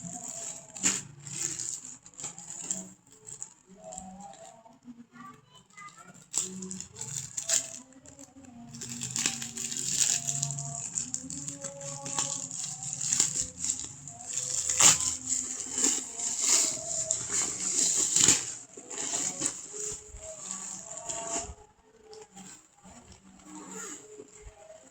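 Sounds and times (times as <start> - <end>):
plastic packaging rustling: 0.0 - 4.6, 5.7 - 24.9
background music: 6.2 - 24.9.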